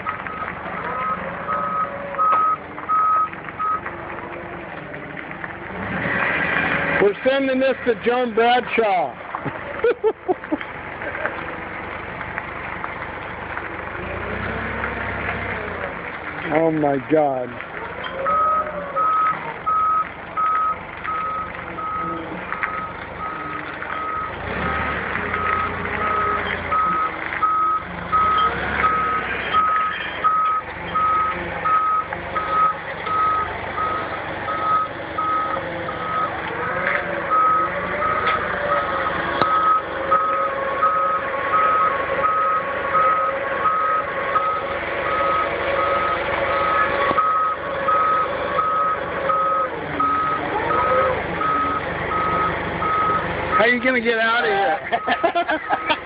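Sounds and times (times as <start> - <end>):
vehicle manoeuvring: 0.0 - 56.0
reversing alarm beeping: 0.3 - 3.8, 18.2 - 23.4, 24.0 - 24.3, 25.4 - 36.4, 37.3 - 53.8, 55.0 - 55.9.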